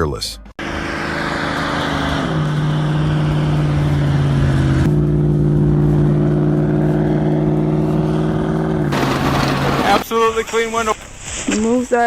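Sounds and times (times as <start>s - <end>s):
heavy vehicle engine running: 0.7s - 10.1s.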